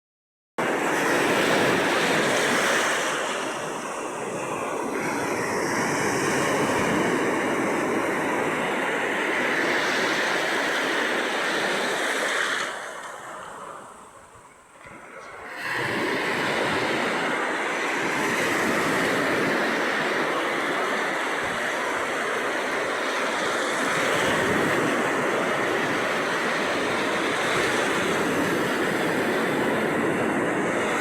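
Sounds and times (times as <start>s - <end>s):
sea waves washing ashore: 0.6s - 31.0s.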